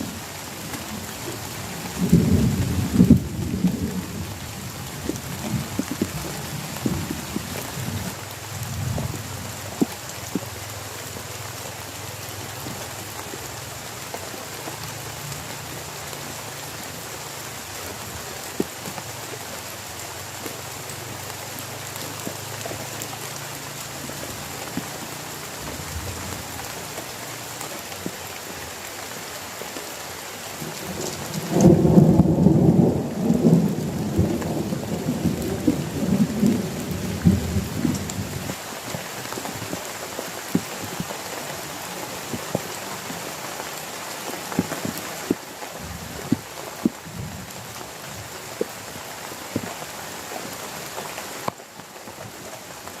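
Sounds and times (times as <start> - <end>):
heavy rain falling: 0.0 - 53.0
thunder rumbling: 1.8 - 9.8, 30.6 - 38.6
sharp raindrop hits: 30.6 - 39.8.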